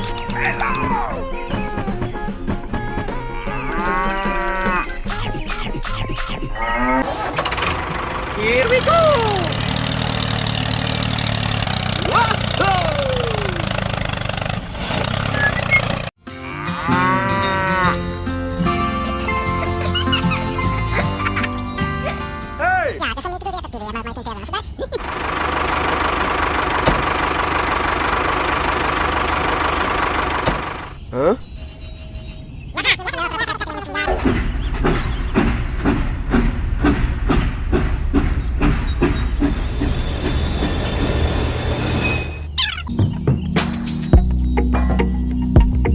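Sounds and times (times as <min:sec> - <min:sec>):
background music: 0:00.0 - 0:07.0, 0:16.2 - 0:22.9
engine running: 0:00.0 - 0:16.1, 0:25.0 - 0:31.0
cow mooing: 0:03.5 - 0:04.9, 0:06.6 - 0:07.1, 0:16.3 - 0:18.2
thin high squeal: 0:31.5 - 0:32.5, 0:39.3 - 0:42.8
train wheels clicking over rail joints: 0:34.1 - 0:41.6.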